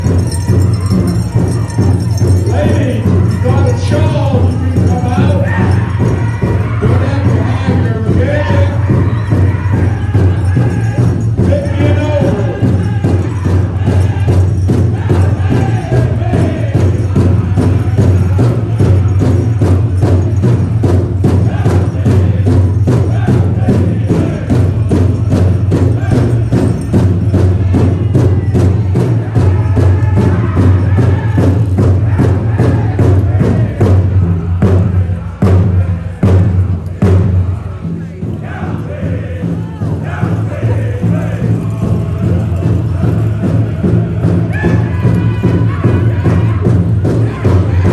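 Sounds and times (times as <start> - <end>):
group chanting in unison: 0.0 - 47.9
large drum steady beat: 0.0 - 47.9.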